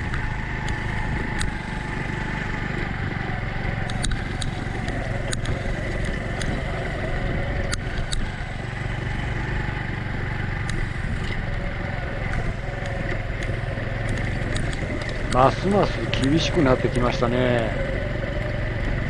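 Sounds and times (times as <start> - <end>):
sharp clicks: 0.0 - 1.8, 3.8 - 6.8, 7.6 - 8.4, 10.6 - 11.4, 12.2 - 17.0
small motorcycle engine running: 0.0 - 19.0.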